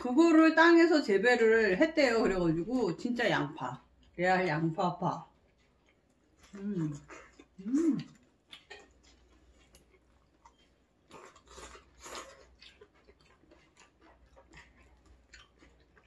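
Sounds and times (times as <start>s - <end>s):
quiet chewing: 3.7s - 4.2s, 4.9s - 16.0s.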